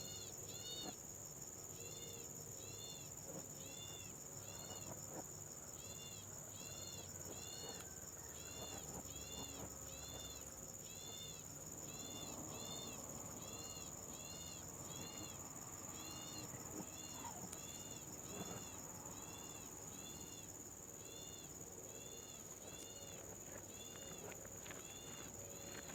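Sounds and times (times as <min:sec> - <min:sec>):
high-pitched insect drone: 0:05.7 - 0:25.9.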